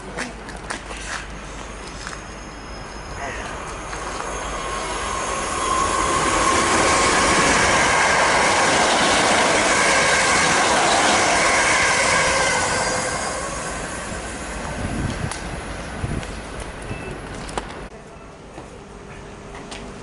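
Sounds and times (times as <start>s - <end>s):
train rushing past: 1.1s - 17.0s
high-pitched whine: 1.4s - 14.9s.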